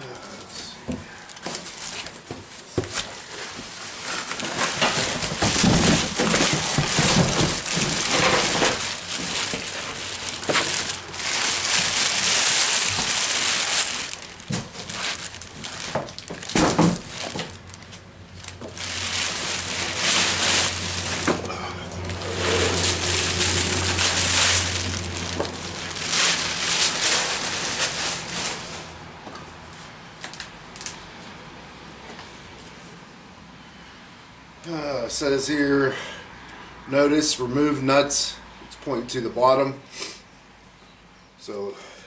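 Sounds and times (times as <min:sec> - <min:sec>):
wrapping crinkling and crunching: 0:00.3 - 0:29.0.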